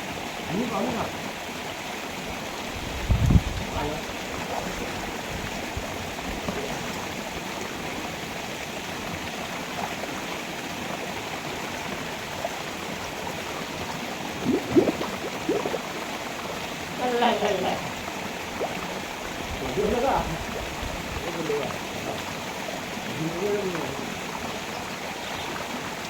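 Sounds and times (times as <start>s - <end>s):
river water rushing: 14.3s - 17.2s.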